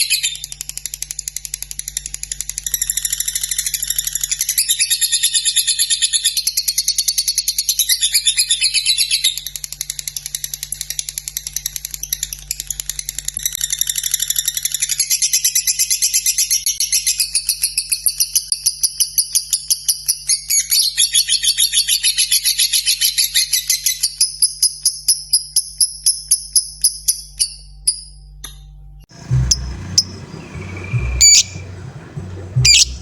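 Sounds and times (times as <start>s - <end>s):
lovebird chattering song: 0.0s - 0.5s, 29.2s - 33.0s.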